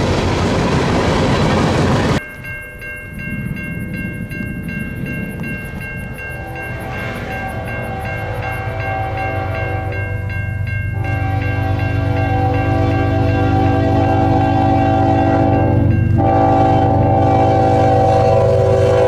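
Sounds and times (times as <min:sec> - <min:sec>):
passing train: 0:00.0 - 0:19.0
crossing bell ringing: 0:01.3 - 0:19.0
locomotive horn: 0:06.3 - 0:19.0.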